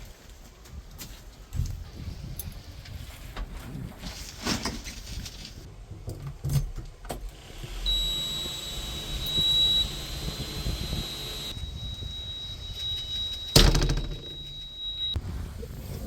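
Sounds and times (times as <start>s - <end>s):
diesel engine under load: 7.3s - 14.4s
steady high whine: 7.6s - 15.2s.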